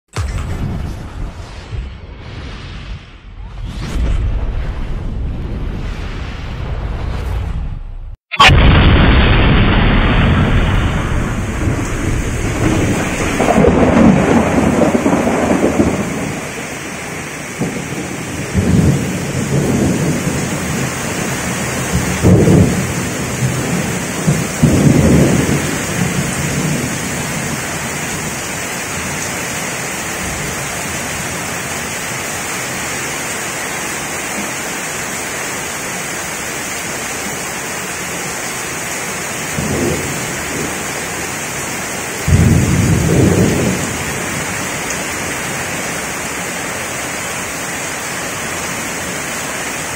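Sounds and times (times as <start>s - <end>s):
thunder rumbling: 0.2s - 31.6s, 39.5s - 41.0s, 41.6s - 46.4s
heavy rain pouring: 8.4s - 49.9s.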